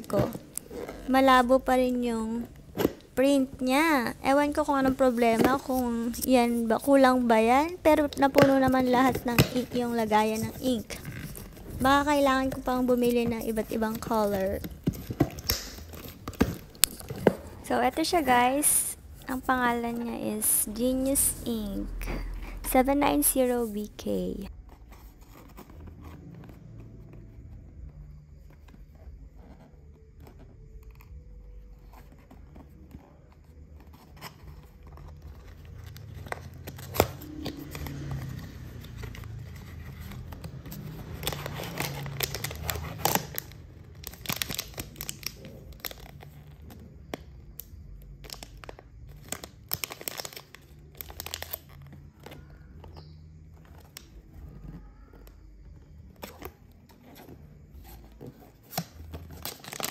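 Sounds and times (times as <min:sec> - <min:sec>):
plastic crinkling and tearing: 0:33.8 - 0:46.8, 0:48.2 - 0:52.6, 0:58.6 - 0:59.9.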